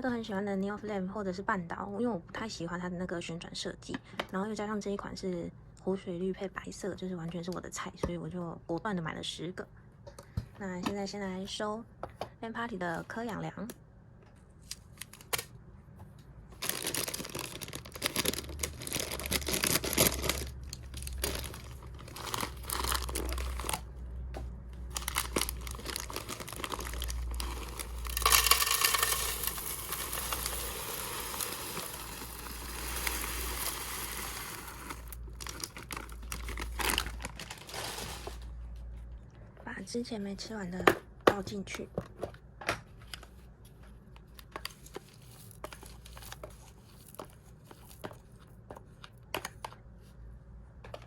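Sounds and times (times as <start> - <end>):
plastic bag crinkling: 16.6 - 23.9, 24.9 - 38.5.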